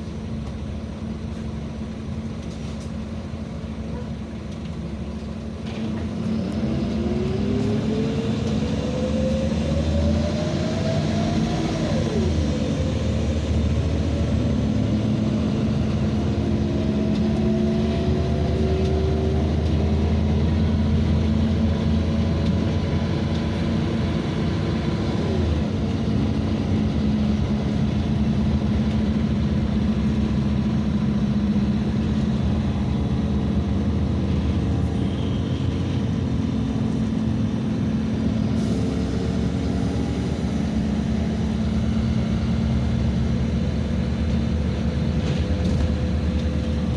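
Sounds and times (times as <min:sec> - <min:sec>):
bus engine and road drone: 0:00.0 - 0:46.9
rising whine: 0:34.0 - 0:43.1.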